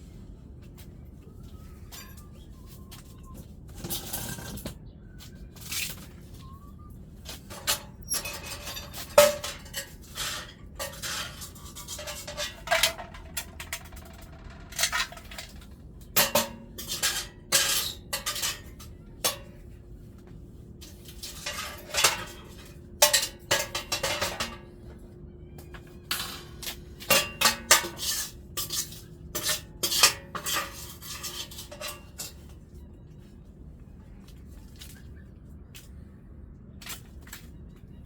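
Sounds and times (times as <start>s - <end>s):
metal tools clanking on stove: 7.3s - 19.6s, 20.8s - 24.8s, 25.6s - 32.6s.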